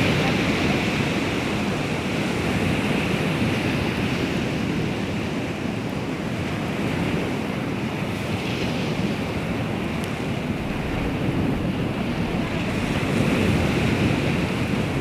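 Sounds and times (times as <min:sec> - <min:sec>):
sea waves washing onto shore: 0:00.0 - 0:15.0
wind on microphone: 0:08.6 - 0:15.0.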